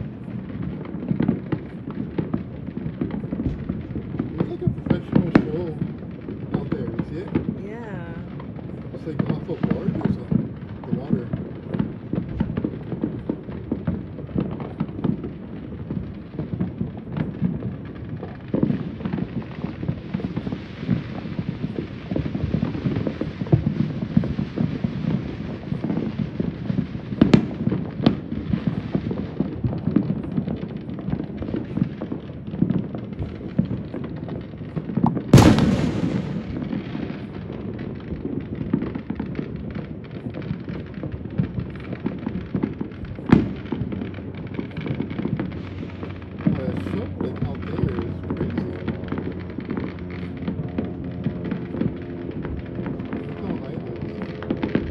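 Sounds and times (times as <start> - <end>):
fireworks crackling and booming: 0.0 - 54.9
loud sharp bang: 35.3 - 37.3.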